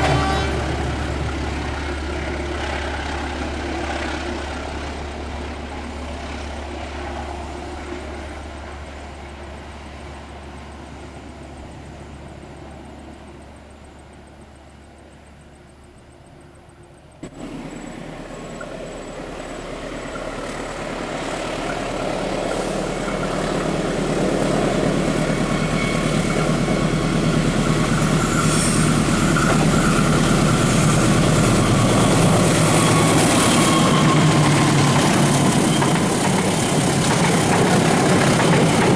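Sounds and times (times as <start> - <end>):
diesel locomotive engine drone: 0.0 - 38.9
high whine: 17.0 - 38.9.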